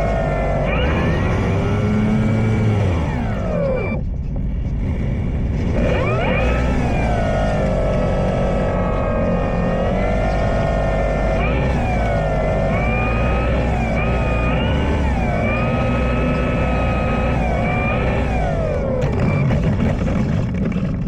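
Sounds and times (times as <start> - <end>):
wind rumbling on microphone: 0.0 - 13.0
electric motor and propeller whine: 0.0 - 20.6.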